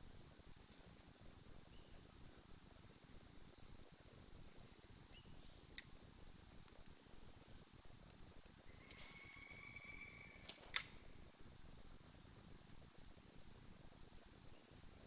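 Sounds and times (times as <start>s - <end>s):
insects droning: 0.0s - 15.0s
sharp click: 10.5s - 11.0s.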